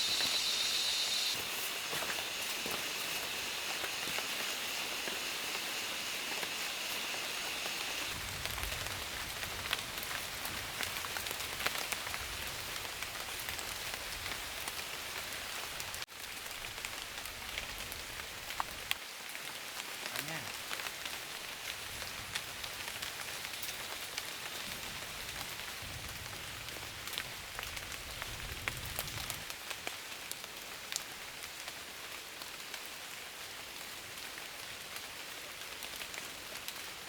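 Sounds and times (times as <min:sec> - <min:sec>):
high-pitched drone: 0:00.0 - 0:08.1
steady rain falling: 0:00.0 - 0:37.0.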